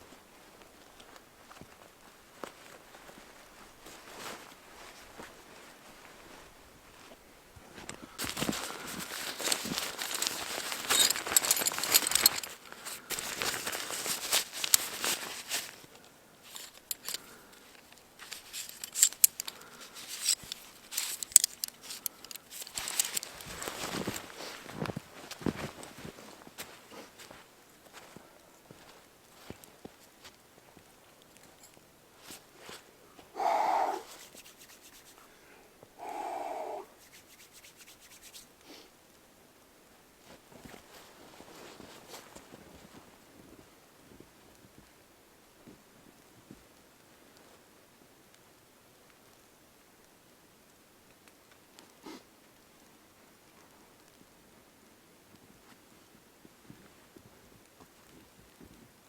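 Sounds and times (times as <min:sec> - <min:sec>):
crunching and crinkling rustles: 0:00.0 - 0:33.4, 0:40.1 - 0:45.0
rasping rubbing strokes: 0:33.4 - 0:35.2, 0:36.1 - 0:38.4.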